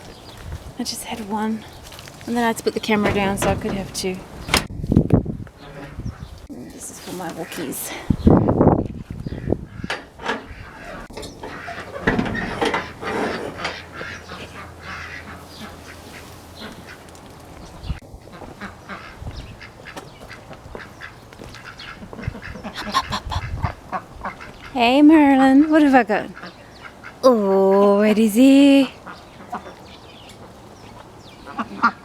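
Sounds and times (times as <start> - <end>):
ducks quacking: 9.3 - 17.1, 18.2 - 27.2, 28.9 - 32.0.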